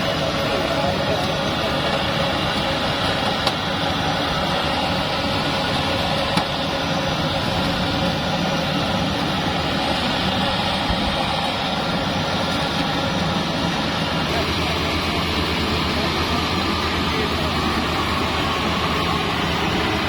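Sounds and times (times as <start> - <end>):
rice thresher running: 0.0 - 20.0.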